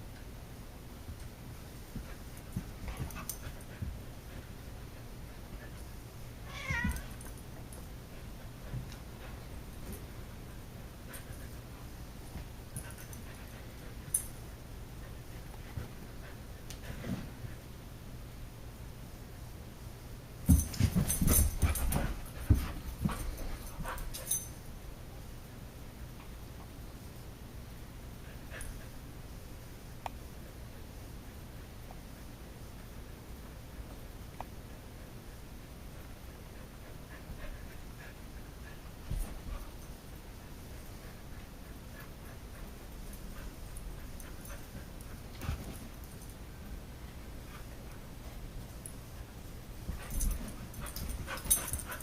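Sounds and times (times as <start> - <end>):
cat yowling: 6.5 - 7.0.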